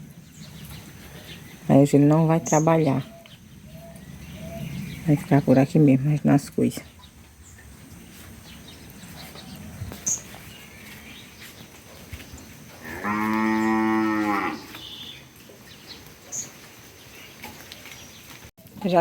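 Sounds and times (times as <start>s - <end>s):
cow mooing: 12.8s - 14.8s.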